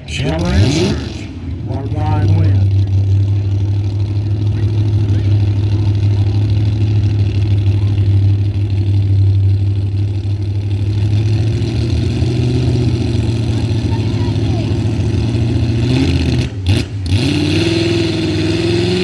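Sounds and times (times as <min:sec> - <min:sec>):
truck engine running: 0:00.0 - 0:19.0.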